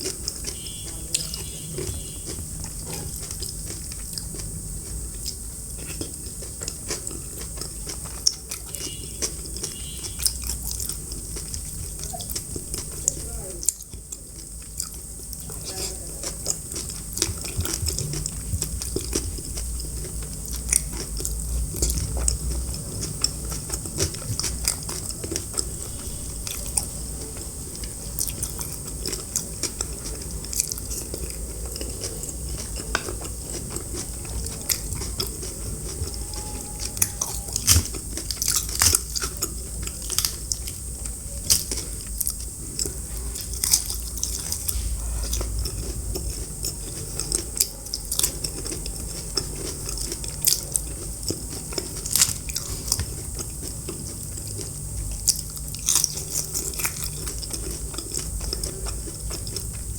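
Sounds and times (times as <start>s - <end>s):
chewing and crunching food: 0.0s - 59.9s.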